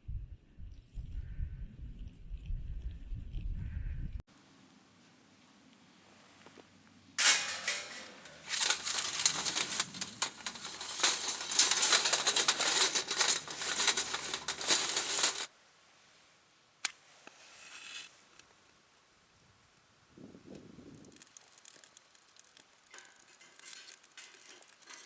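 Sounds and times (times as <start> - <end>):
crinkling and rustling with clicks: 7.2 - 15.5, 21.0 - 25.0.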